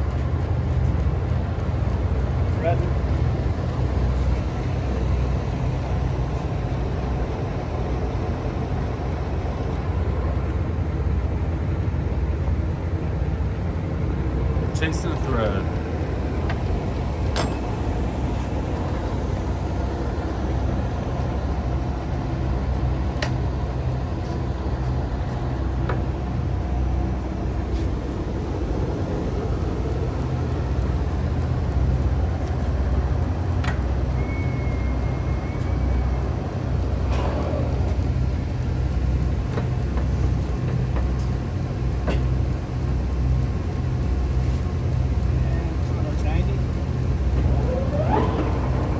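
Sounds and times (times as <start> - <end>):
lathe running drone: 0.0 - 11.4, 13.6 - 48.9
brief high whine: 47.4 - 48.9.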